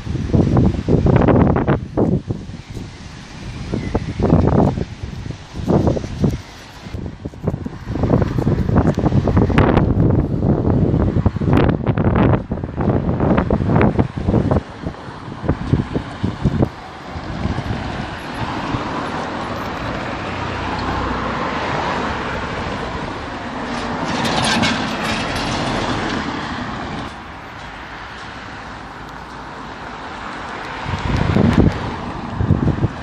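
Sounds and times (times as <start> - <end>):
wind buffeting microphone: 0.0 - 33.0
train passing: 14.6 - 33.0.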